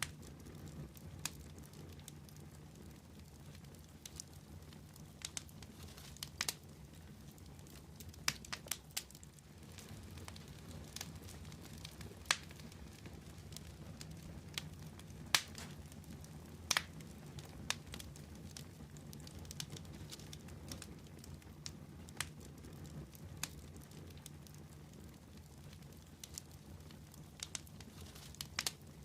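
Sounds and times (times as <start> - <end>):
wood fire crackling and popping: 0.0 - 29.0.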